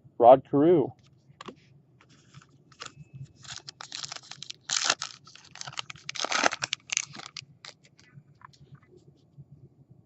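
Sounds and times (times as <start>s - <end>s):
foil wrapper tearing and crinkling: 2.8s - 8.0s.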